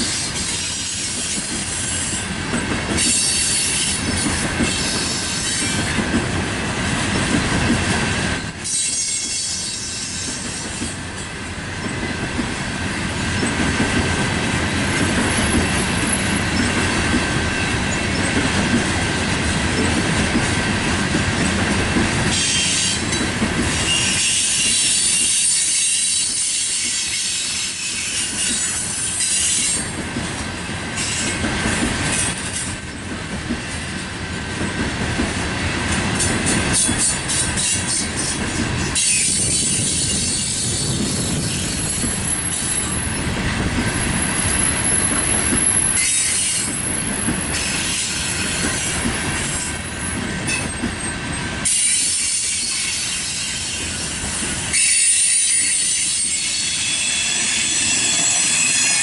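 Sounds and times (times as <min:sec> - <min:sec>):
train cars rumbling on rails: 0:00.0 - 0:59.0
high wheel squeal: 0:08.4 - 0:11.0, 0:22.3 - 0:29.9, 0:36.8 - 0:43.3, 0:51.6 - 0:59.0.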